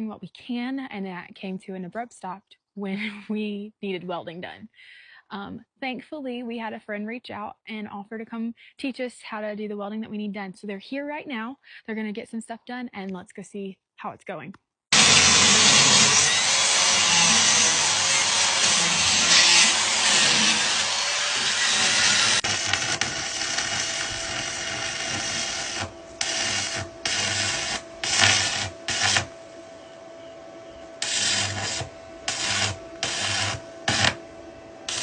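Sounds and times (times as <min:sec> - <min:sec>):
welding arc crackle: 0:14.9 - 0:29.4, 0:31.0 - 0:34.3
steady whine: 0:14.9 - 0:35.0.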